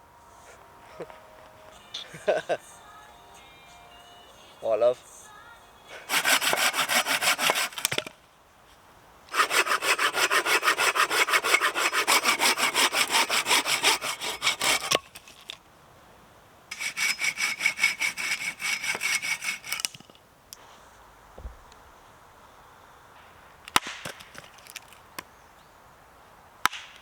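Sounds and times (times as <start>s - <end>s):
hand saw cutting wood: 6.0s - 8.2s, 9.3s - 15.6s, 16.7s - 20.1s.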